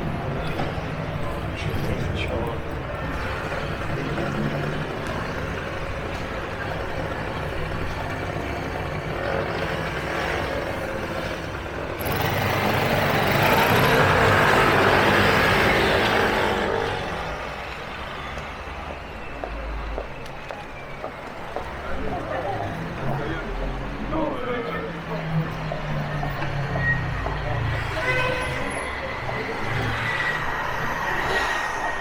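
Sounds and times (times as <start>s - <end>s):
heavy vehicle passing close: 0.0s - 32.0s
street traffic: 0.0s - 32.0s.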